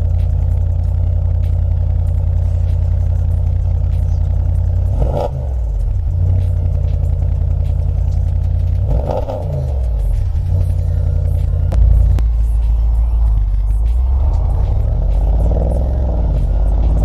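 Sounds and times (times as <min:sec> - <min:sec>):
car engine idling: 0:00.0 - 0:17.0
engine throttle blip: 0:10.4 - 0:12.4.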